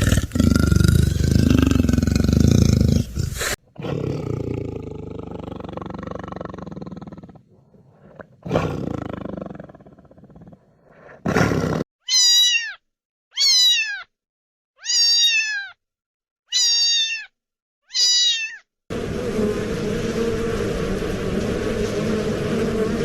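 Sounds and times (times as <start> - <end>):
cat meowing: 12.1 - 14.1, 14.8 - 15.8, 16.5 - 18.6
steady noisy drone: 18.9 - 23.0.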